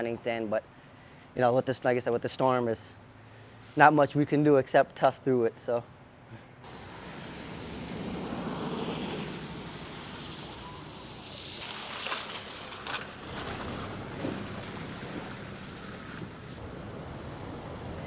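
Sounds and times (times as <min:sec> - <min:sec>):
wind rushing: 0:06.8 - 0:11.7.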